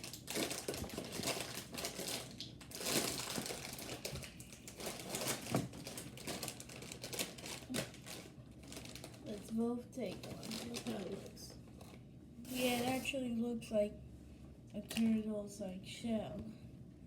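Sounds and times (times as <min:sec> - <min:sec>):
plastic snack bag crinkling: 0:00.0 - 0:13.2.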